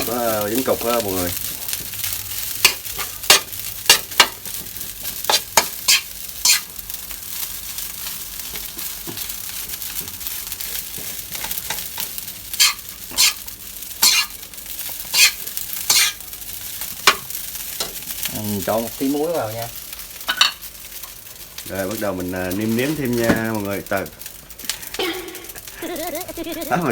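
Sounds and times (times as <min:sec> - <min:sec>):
rice sizzling in hot oil: 0:00.0 - 0:26.9.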